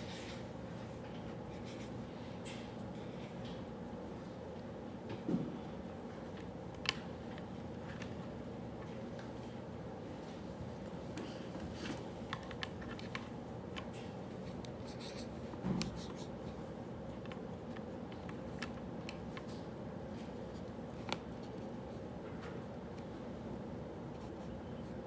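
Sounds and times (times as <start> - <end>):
low room hum: 0.0 - 25.0
pen scratching on paper: 14.8 - 16.5.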